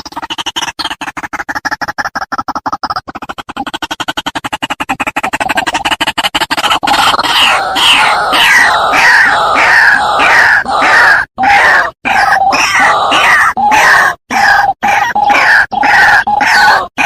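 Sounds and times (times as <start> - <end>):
waterhen calling harshly: 6.9 - 17.0.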